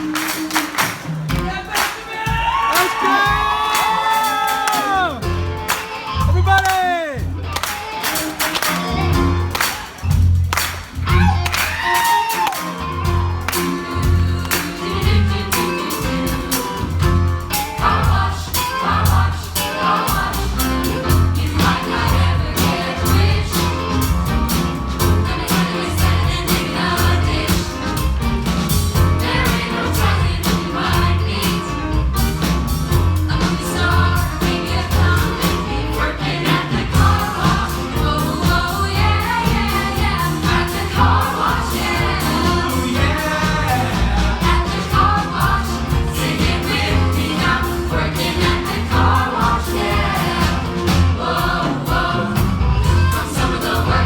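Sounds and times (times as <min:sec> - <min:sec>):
vocal ensemble singing funk: 0:00.8 - 0:06.4, 0:07.1 - 0:54.0
pulsing bass beat: 0:20.1 - 0:36.1, 0:36.8 - 0:54.0.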